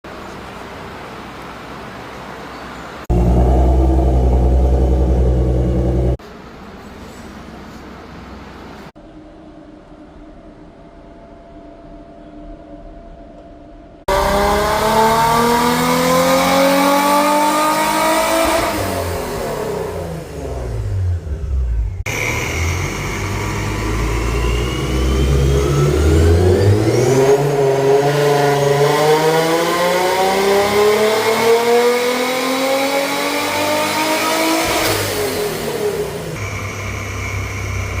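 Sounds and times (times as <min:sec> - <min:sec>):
car engine revving: 0:03.0 - 0:06.2, 0:14.1 - 0:38.0.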